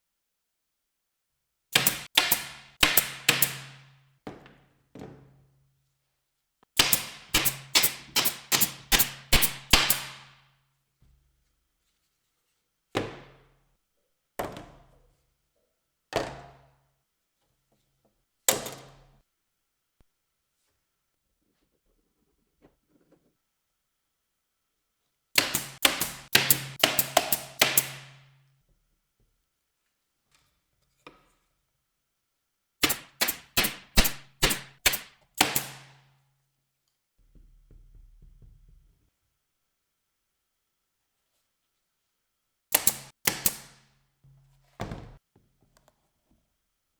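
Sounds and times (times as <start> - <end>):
hammer striking wood: 1.8 - 3.8, 6.8 - 10.3, 25.4 - 28.3, 32.8 - 36.0, 42.8 - 43.8.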